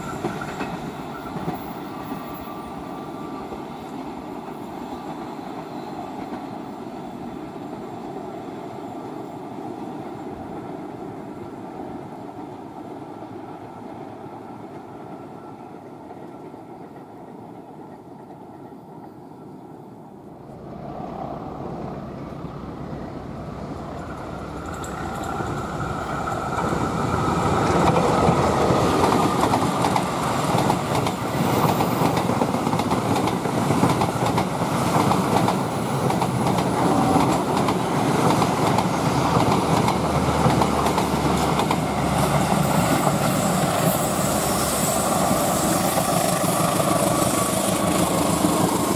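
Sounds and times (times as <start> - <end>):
train rumble: 0.0 - 48.9
train wheels clattering over rail joints: 24.0 - 44.3.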